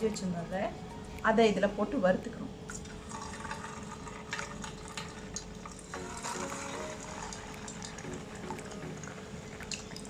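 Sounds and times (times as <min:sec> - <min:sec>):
food sizzling in hot oil: 0:02.9 - 0:10.0.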